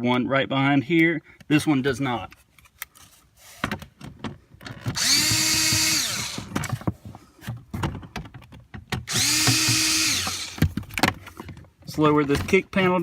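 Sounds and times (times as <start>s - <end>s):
cordless drill whining: 4.9s - 6.6s, 9.1s - 10.8s
screws clicking: 5.0s - 6.5s, 9.1s - 10.7s.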